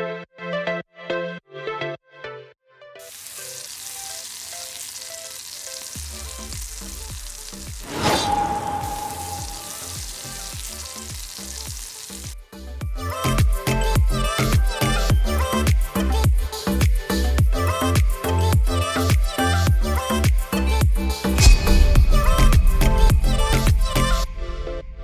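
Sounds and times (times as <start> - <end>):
food sizzling: 3.0 - 12.4.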